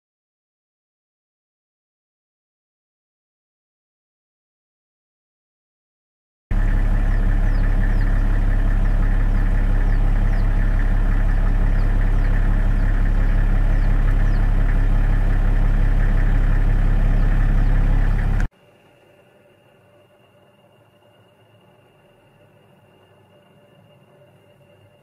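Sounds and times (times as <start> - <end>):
vehicle engine idling: 6.5 - 25.0
faint high chirps: 18.6 - 25.0.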